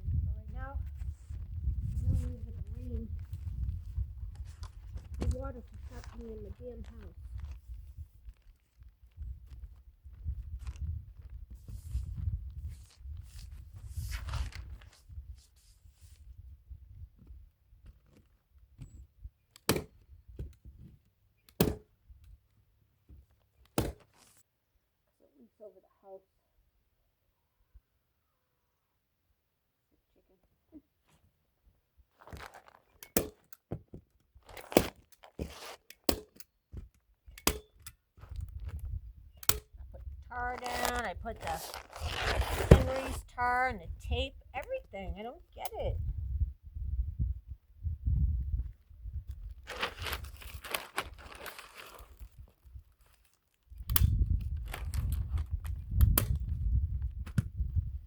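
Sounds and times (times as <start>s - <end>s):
roofing underlayment crinkling: 2.1s - 15.8s, 32.1s - 33.0s, 34.3s - 35.9s, 40.3s - 43.5s, 49.5s - 53.8s, 54.5s - 55.8s.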